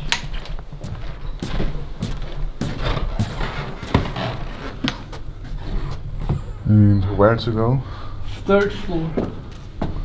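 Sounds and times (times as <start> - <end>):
footsteps on hard floor: 0.4 - 6.5.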